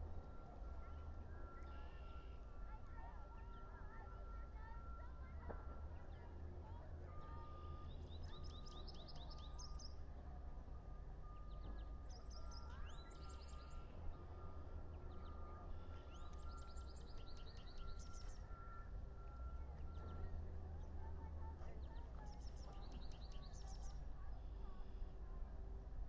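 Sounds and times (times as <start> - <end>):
low steady hum: 9.6 - 26.0.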